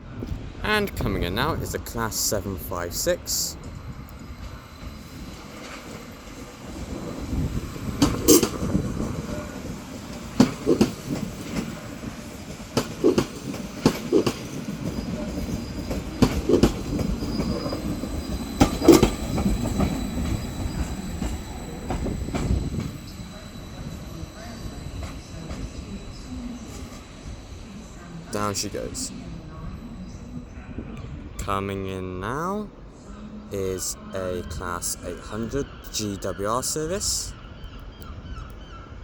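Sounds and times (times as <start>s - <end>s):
train rumble: 0.0s - 31.6s
wheels knocking on rail joints: 10.2s - 11.8s, 12.5s - 23.0s.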